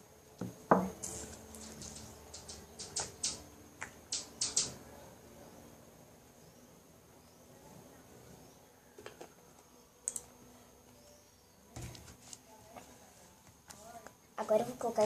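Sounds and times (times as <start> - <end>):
sharp knock on table: 0.7 - 1.0.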